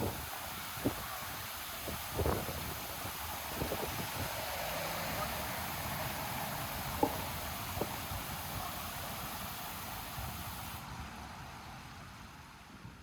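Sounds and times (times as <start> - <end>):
distant traffic hum: 2.8 - 11.8.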